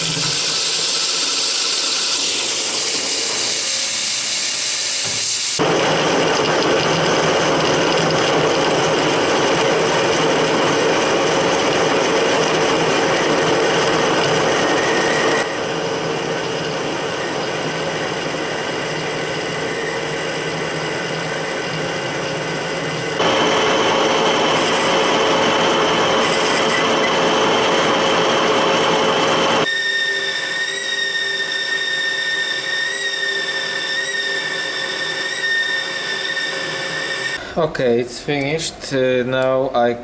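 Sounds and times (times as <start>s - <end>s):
machine tool cutting steel: 23.2s - 37.4s.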